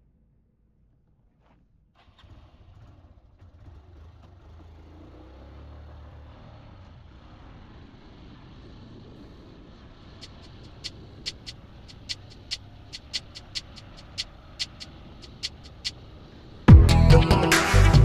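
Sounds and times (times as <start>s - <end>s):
motorcycle engine rumbling: 9.2s - 18.0s.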